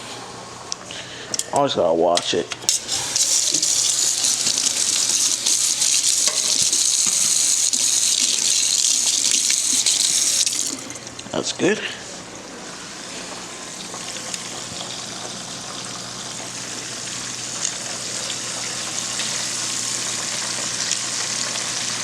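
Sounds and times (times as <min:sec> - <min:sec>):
oil popping: 0:02.7 - 0:11.1
chicken deep-frying in oil: 0:02.9 - 0:10.9, 0:13.7 - 0:22.0.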